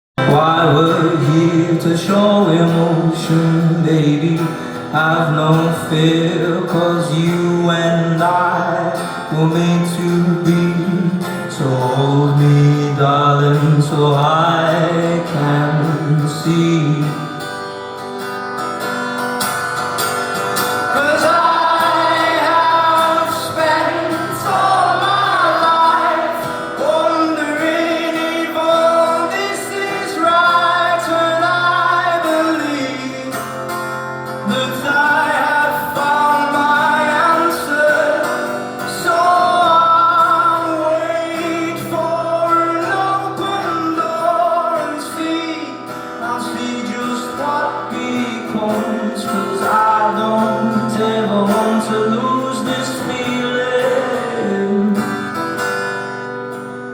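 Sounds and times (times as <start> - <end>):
sung vocals: 0.2 - 17.5, 20.6 - 55.6
guitars: 0.2 - 56.9.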